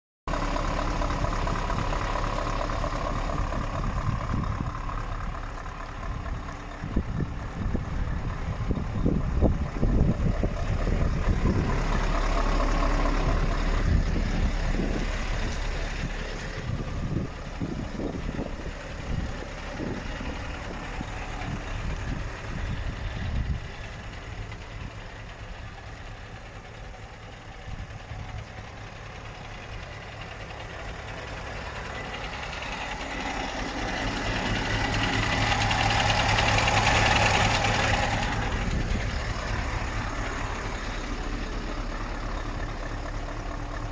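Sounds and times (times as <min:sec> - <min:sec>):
diesel engine idling: 0:00.3 - 0:43.9.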